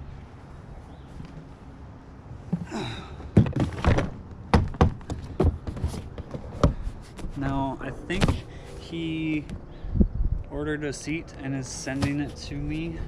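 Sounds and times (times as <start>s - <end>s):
hard objects knocking: 3.4s - 7.3s.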